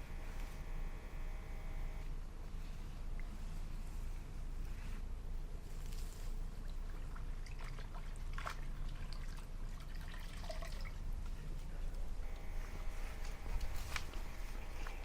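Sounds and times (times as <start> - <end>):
water dripping and splashing: 6.6 - 11.1.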